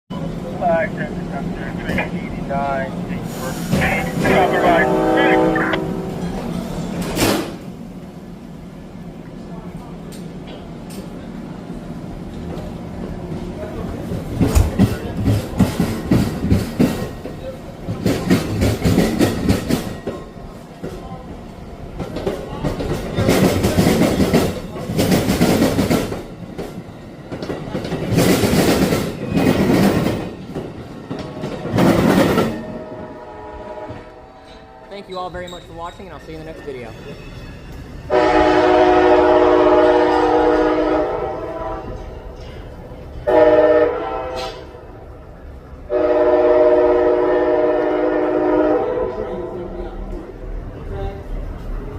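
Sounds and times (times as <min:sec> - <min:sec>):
locomotive air horn blast: 0:03.2 - 0:06.4, 0:32.6 - 0:35.0, 0:38.1 - 0:42.0, 0:43.2 - 0:44.8, 0:45.9 - 0:49.5
train wheels clacking over rail joints: 0:14.1 - 0:21.2, 0:22.0 - 0:32.7.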